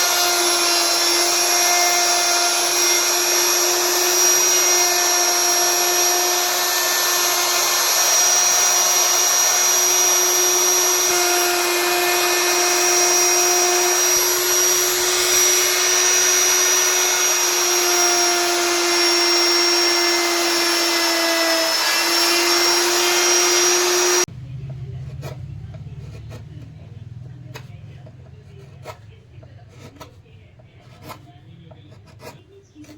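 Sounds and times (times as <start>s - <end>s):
power tool motor whining: 0.0s - 24.3s.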